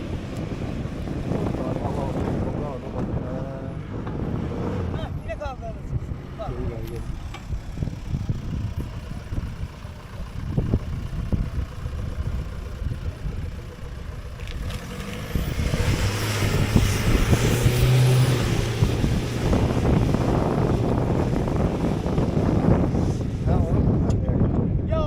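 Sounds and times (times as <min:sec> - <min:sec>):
car engine running under load: 0:00.0 - 0:25.0.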